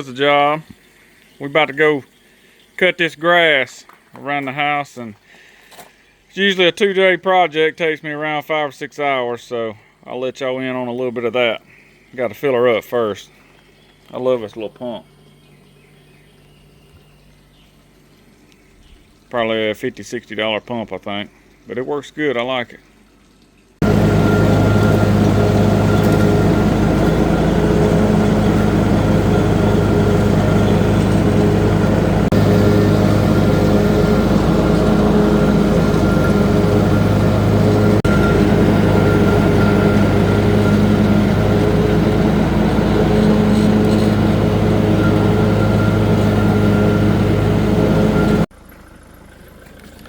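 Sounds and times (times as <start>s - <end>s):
lawn mower engine humming: 23.8s - 50.0s.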